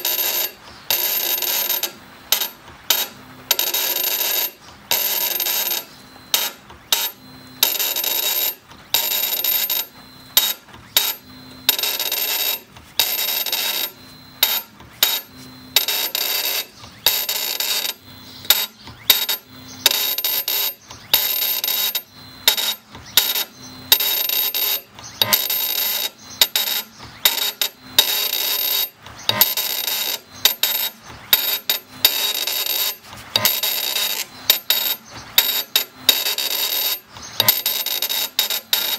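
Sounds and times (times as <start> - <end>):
faint spindle whine: 0.0 - 38.9
engraving machine scraping stone: 12.5 - 38.9.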